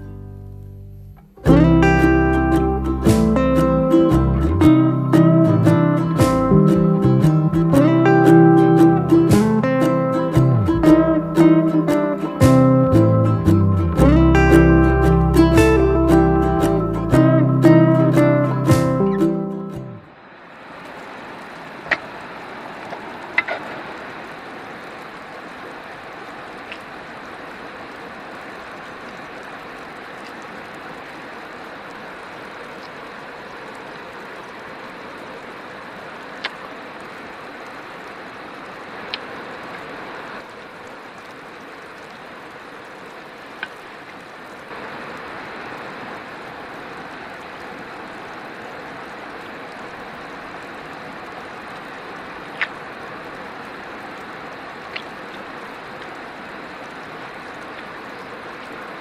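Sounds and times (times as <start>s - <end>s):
rushing water: 1.2s - 59.0s
faint sharp clicks: 26.6s - 26.9s, 36.4s - 36.7s, 54.2s - 56.2s.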